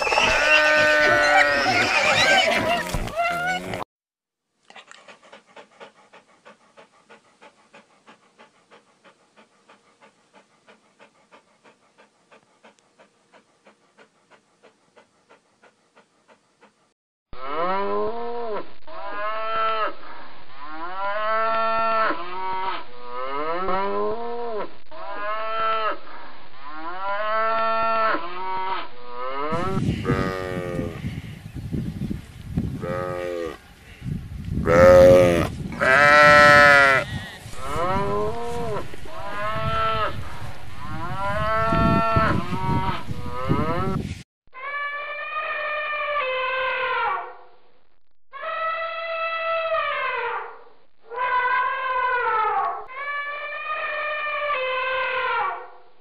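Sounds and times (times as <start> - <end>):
cattle mooing: 0.2 - 2.4, 34.7 - 44.0
dog panting: 4.7 - 17.0, 37.4 - 43.6
rough low rumble: 34.5 - 44.2.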